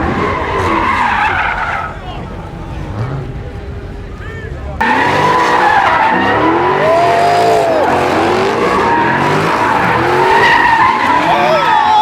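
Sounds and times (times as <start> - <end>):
car tyres squealing: 0.0 - 12.0
engine revving: 4.8 - 11.7.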